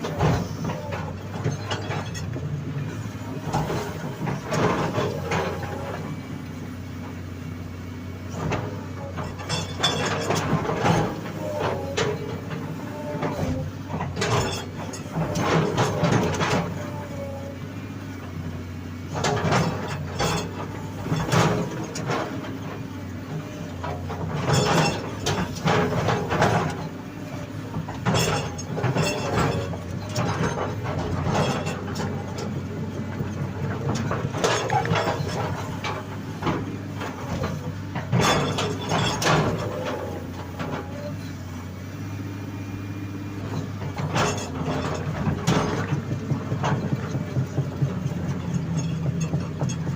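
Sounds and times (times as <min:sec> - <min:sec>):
excavator diesel engine running: 0:00.0 - 0:49.9
metallic clanking and scraping: 0:00.0 - 0:49.9.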